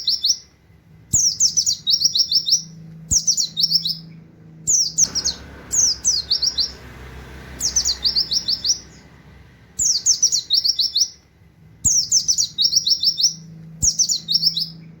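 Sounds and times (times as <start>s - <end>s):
bird singing high wit notes: 4.7s - 11.2s.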